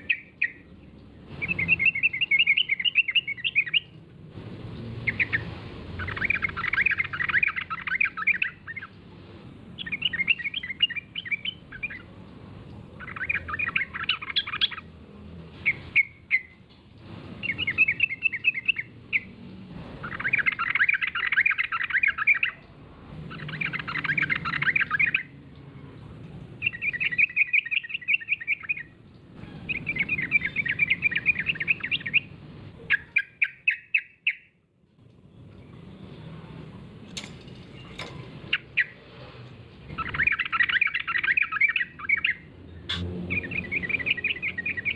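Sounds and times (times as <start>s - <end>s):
bulbul bird chattering song: 0.0s - 4.0s, 5.0s - 9.0s, 9.8s - 12.1s, 12.9s - 14.9s, 15.6s - 16.6s, 17.4s - 19.4s, 20.0s - 22.7s, 23.3s - 25.4s, 26.6s - 34.6s, 39.9s - 44.9s.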